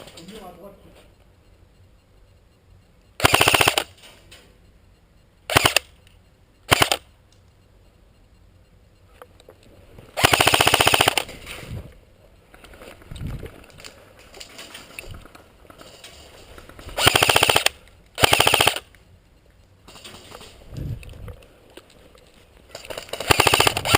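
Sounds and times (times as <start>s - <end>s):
airsoft gun firing full auto: 3.2s - 3.9s, 5.5s - 5.9s, 6.7s - 7.0s, 10.2s - 11.3s, 17.0s - 18.9s, 22.8s - 23.9s.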